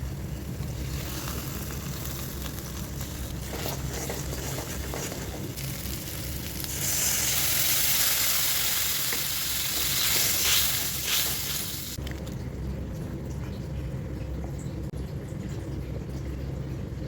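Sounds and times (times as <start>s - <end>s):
food frying in hot oil: 0.0s - 12.0s.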